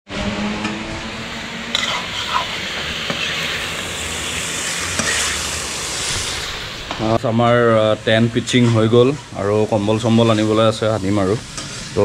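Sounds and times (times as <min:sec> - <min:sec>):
chicken sizzling in a wok: 0:01.3 - 0:12.0.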